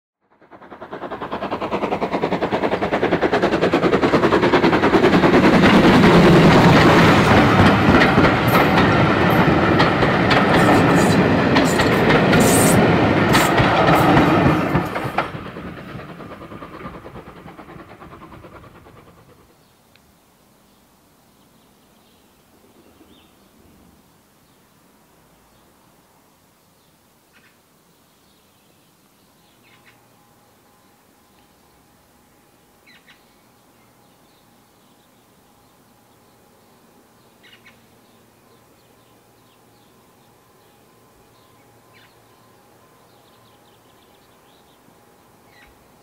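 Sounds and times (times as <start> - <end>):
train passing at speed: 0.2 - 26.5, 27.8 - 46.0
faint outdoor background: 0.2 - 46.0
wheels clicking and clattering: 1.1 - 19.2.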